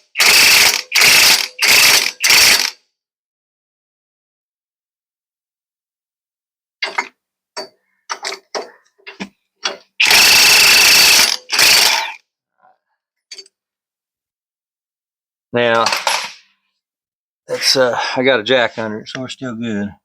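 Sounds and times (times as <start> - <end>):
impact wrench bursts: 0.0 - 2.8, 10.0 - 12.2
metal tools clinking: 15.8 - 16.4.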